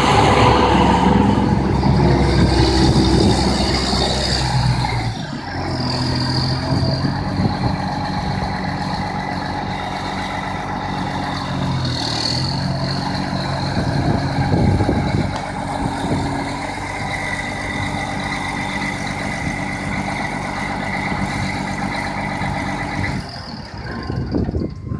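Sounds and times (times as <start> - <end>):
thin high whine: 0.0 - 5.4
tractor diesel engine running: 0.0 - 24.9.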